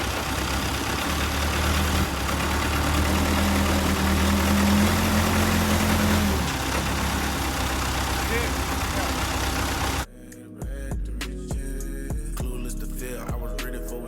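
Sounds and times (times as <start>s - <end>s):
road or wind noise: 0.0s - 10.0s
vehicle engine running: 0.0s - 10.1s.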